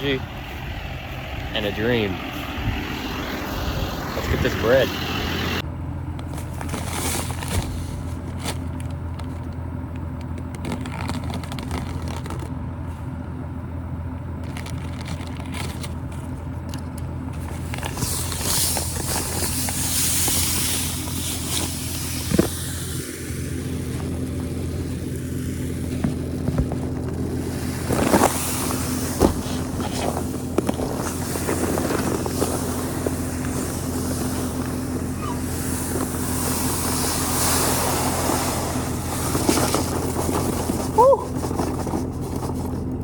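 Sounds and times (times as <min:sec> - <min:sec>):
hissing rush: 0:00.0 - 0:05.6, 0:17.9 - 0:26.0, 0:27.3 - 0:40.1
vehicle engine droning: 0:00.0 - 0:43.0.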